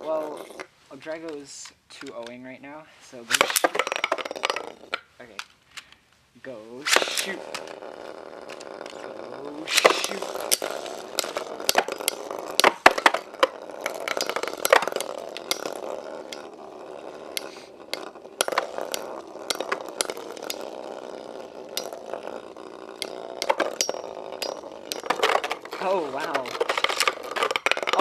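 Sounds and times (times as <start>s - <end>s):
spinning tops whirring: 3.2s - 5.1s, 6.8s - 28.0s
sharp clicks of tops clashing: 3.3s - 5.4s, 6.8s - 7.7s, 9.7s - 28.0s.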